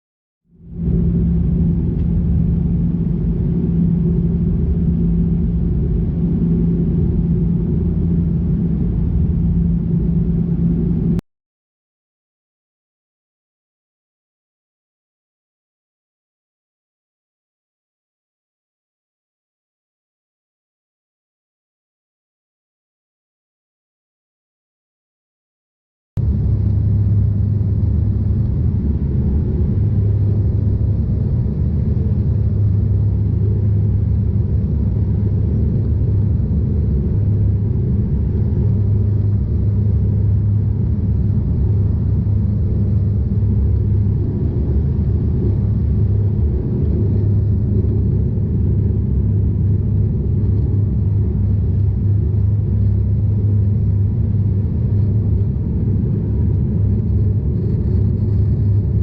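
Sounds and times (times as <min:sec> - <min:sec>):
turboprop airliner cabin drone: 0:00.5 - 0:11.2, 0:26.2 - 0:59.0.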